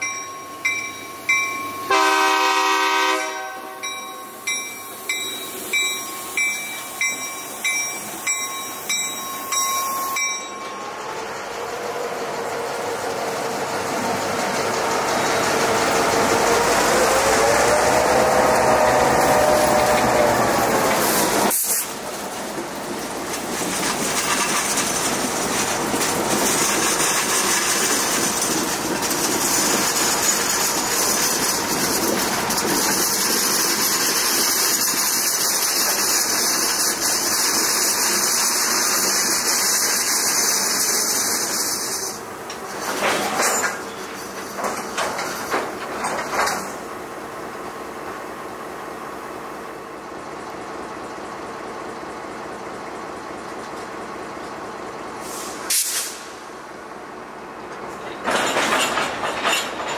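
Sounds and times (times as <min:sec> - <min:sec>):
train clanks: 0:00.0 - 0:59.9
train wheels hissing on rails: 0:00.0 - 0:59.9.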